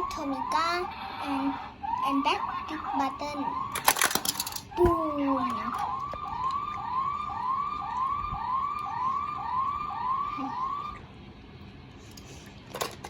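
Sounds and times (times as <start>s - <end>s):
toy police siren whooping: 0.0s - 4.5s, 5.3s - 11.0s.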